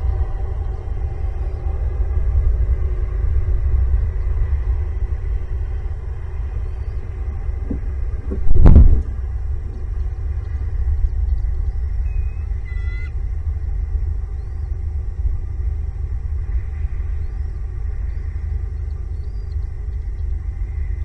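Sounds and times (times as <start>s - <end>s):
wind buffeting microphone: 0.0s - 21.0s
loud thump: 7.6s - 9.2s
faint bird call: 11.5s - 13.2s.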